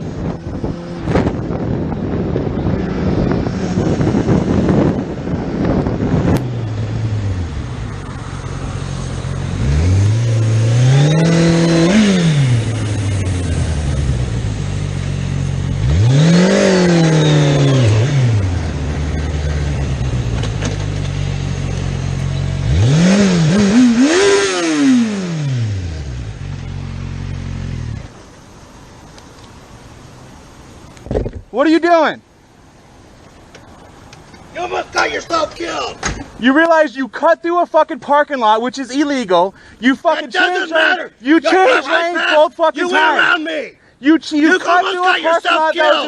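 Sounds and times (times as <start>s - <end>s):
wind noise on microphone: 0.0s - 8.1s, 30.9s - 31.5s
vehicle engine revving: 0.0s - 28.2s.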